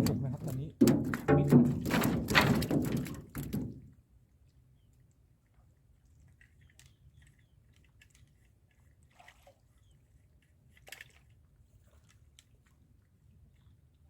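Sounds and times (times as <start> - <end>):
water splashing and dripping: 0.0 - 4.0.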